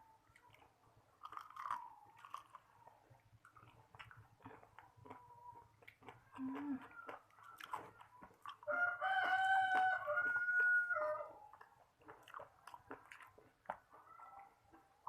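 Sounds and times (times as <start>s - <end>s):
crunchy chewing: 0.0s - 15.0s
rooster crowing: 8.7s - 11.4s.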